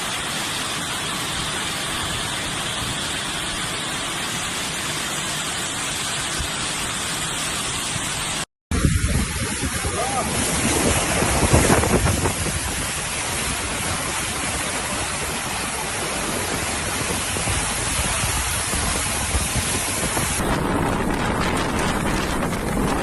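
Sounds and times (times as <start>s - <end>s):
storm wind roaring: 8.7s - 23.0s
wind buffeting microphone: 8.7s - 23.0s.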